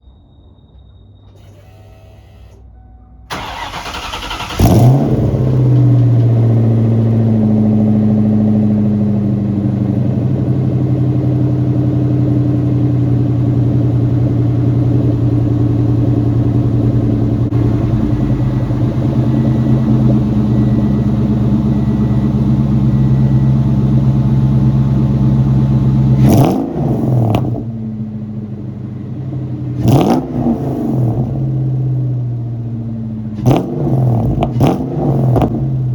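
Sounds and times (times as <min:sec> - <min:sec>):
car engine idling: 0:03.2 - 0:35.9
starter cranking: 0:03.3 - 0:04.7
engine revving: 0:03.3 - 0:32.4, 0:33.2 - 0:35.9.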